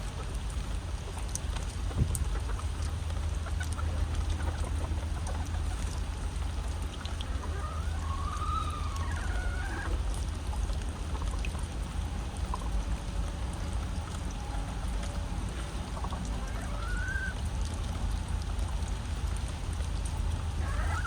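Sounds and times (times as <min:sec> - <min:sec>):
steady rain: 0:00.0 - 0:21.0
water trickling and pouring: 0:00.0 - 0:21.0
hen calling softly: 0:03.4 - 0:11.4, 0:15.4 - 0:17.4, 0:20.5 - 0:21.0.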